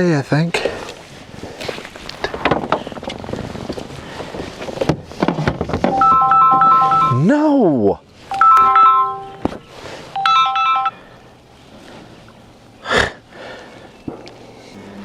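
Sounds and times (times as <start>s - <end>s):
electronic beeping jingle: 6.0s - 7.3s, 8.3s - 9.4s, 10.2s - 11.0s.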